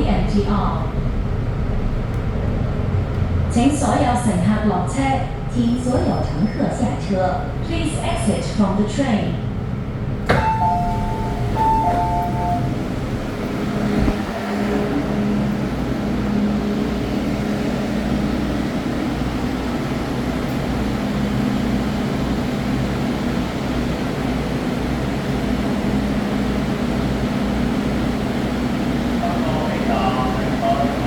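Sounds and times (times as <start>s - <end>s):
train interior hum and rumble: 0.0s - 31.0s
train doors thudding shut: 5.8s - 6.5s, 10.2s - 15.0s.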